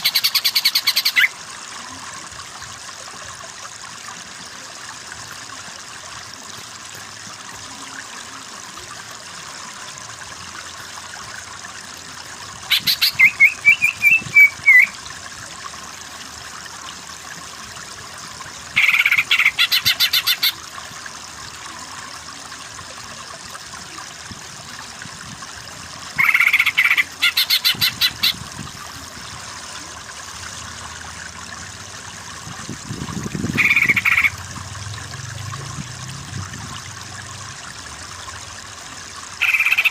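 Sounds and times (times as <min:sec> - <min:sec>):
bird singing rapid repeated notes: 0:00.0 - 0:01.3, 0:12.7 - 0:15.0, 0:33.6 - 0:34.3
trickling stream: 0:00.0 - 0:39.9.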